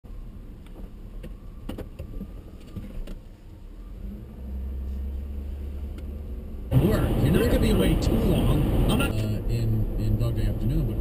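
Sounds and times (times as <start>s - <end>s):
car engine running: 3.9s - 11.0s.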